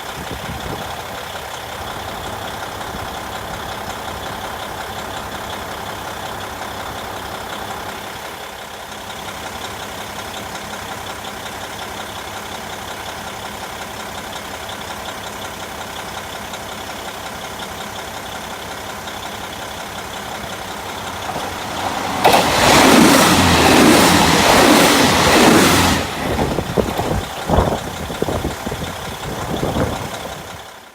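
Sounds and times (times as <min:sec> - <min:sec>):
diesel railcar engine idling: 0:00.0 - 0:30.9
train passing at speed: 0:20.0 - 0:29.2.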